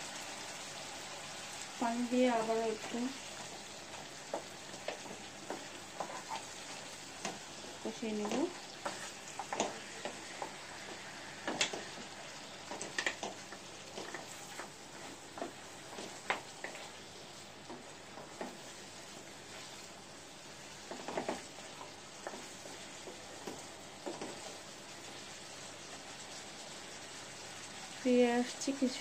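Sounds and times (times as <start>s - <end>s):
meat sizzling in a pan: 0.0s - 29.0s
wooden spatula scraping a pan: 2.4s - 20.0s.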